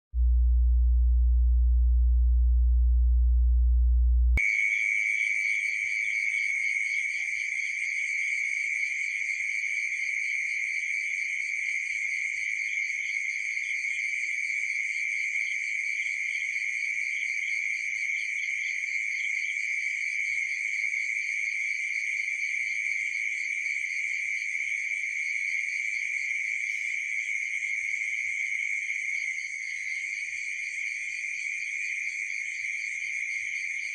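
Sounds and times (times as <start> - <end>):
loud low hum: 0.1 - 4.4
crickets and insects trilling: 4.4 - 33.9.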